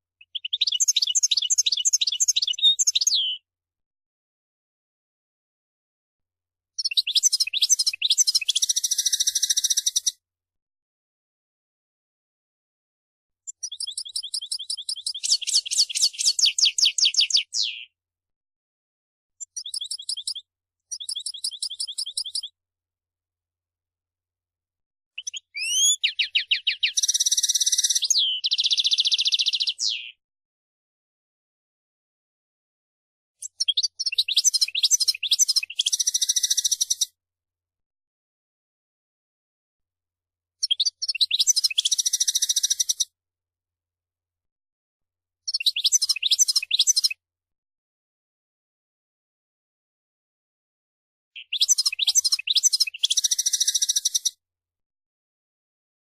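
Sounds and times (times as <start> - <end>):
goldfinch singing: 0.2 - 3.4, 6.8 - 10.1, 13.6 - 17.9, 19.5 - 22.5, 25.2 - 30.2, 33.5 - 37.1, 40.6 - 43.0, 45.5 - 47.2, 51.4 - 54.4.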